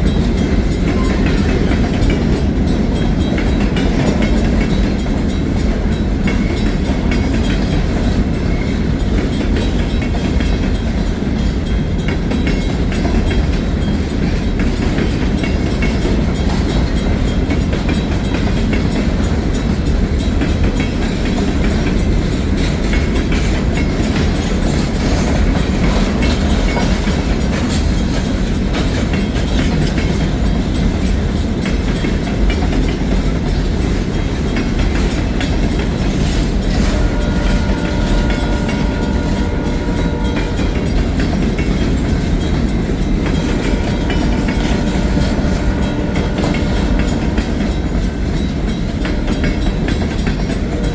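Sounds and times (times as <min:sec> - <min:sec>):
train wheels rumbling on rail: 0:00.0 - 0:50.9
wheels clicking over rail joints: 0:00.0 - 0:50.9.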